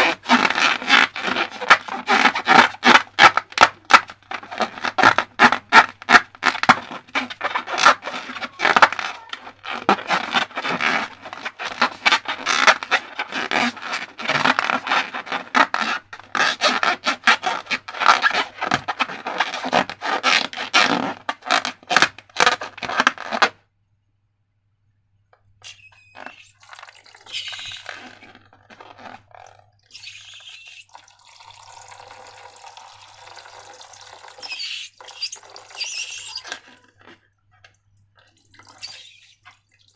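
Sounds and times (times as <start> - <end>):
liquid being poured: 26.1 - 28.2, 29.7 - 37.0, 38.0 - 39.9.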